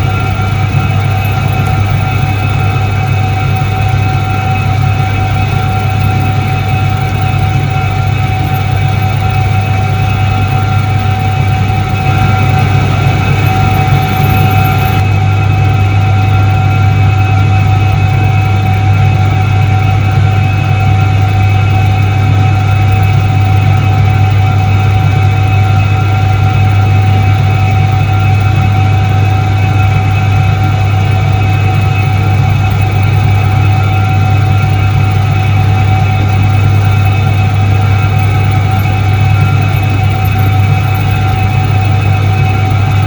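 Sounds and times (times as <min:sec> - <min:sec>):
washing machine motor hum: 0:00.0 - 0:43.0.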